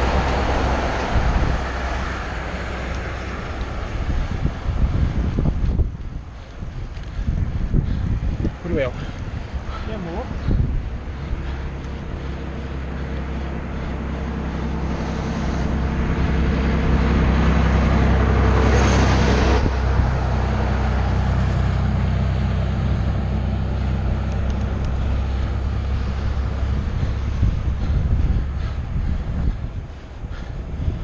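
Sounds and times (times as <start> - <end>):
road and wind noise: 0.0 - 31.0
vehicle engine running: 0.0 - 31.0.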